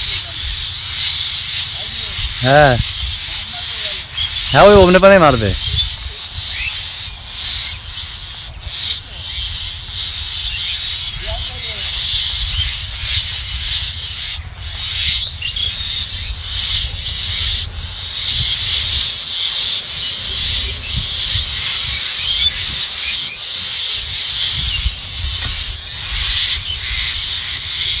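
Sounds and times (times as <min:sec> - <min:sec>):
faint chirps: 0:00.0 - 0:28.0
steady high-pitched hiss: 0:00.0 - 0:28.0
wind buffeting microphone: 0:00.0 - 0:28.0.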